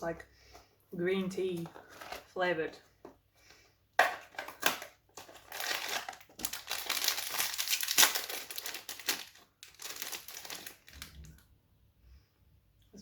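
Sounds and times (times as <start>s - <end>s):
biscuit packaging crinkling: 4.3s - 11.4s.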